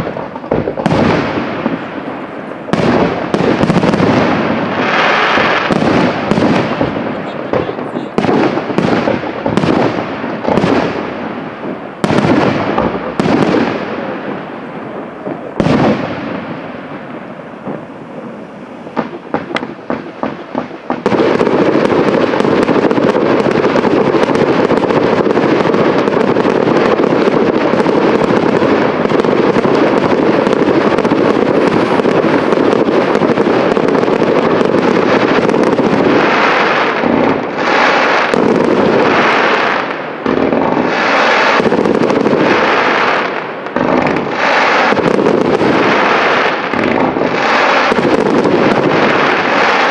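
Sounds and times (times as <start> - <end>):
firework bangs: 0.0 - 49.9
firework crackling and hissing: 0.0 - 49.9
quick firework pops: 18.9 - 23.6.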